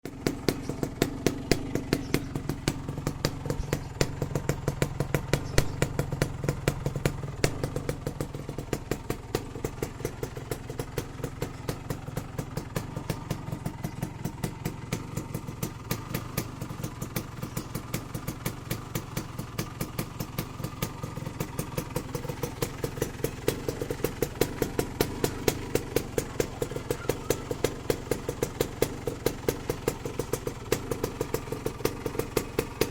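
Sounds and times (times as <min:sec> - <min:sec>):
motorcycle engine idling: 0:00.0 - 0:32.9
sharp exhaust pops: 0:00.2 - 0:09.5.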